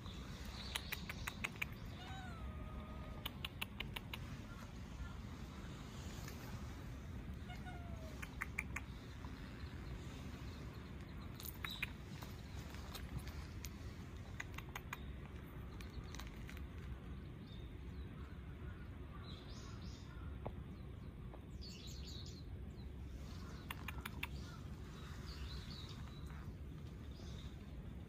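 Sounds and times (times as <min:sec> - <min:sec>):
low outdoor background noise: 0:00.0 - 0:28.0
small birds chirping: 0:00.0 - 0:28.0.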